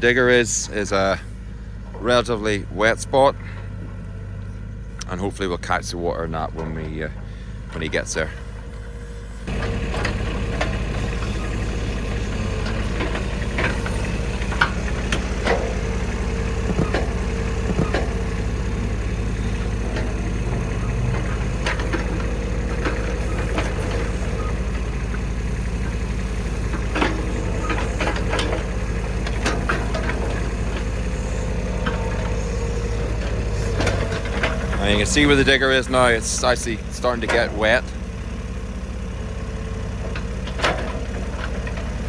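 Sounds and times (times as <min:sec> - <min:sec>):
farm machine engine idling: 0:00.0 - 0:42.0
short clicks and knocks: 0:12.2 - 0:24.9.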